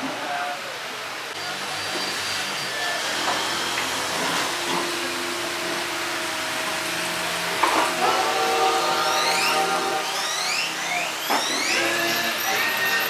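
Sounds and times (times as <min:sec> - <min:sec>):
music: 0:07.9 - 0:13.0.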